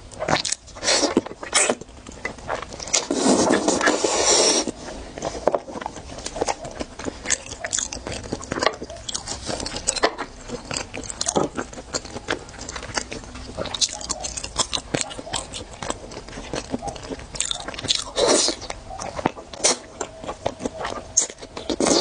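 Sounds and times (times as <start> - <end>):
soft wet chewing: 0.0 - 22.0
wet sucking of food: 0.8 - 1.8, 2.8 - 4.8.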